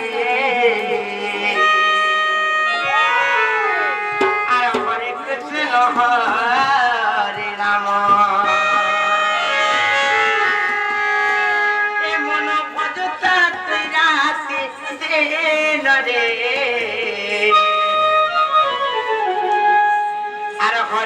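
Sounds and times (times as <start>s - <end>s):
drum strokes: 3.8s - 5.2s.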